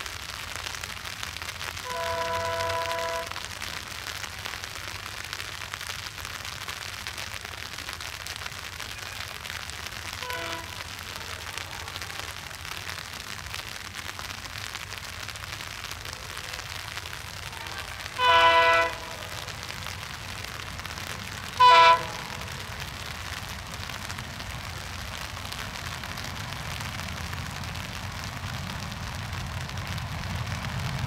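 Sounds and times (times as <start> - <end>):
rain on an umbrella: 0.0 - 31.0
distant locomotive horn: 1.8 - 3.4, 10.2 - 10.9, 17.6 - 19.5, 21.5 - 22.6.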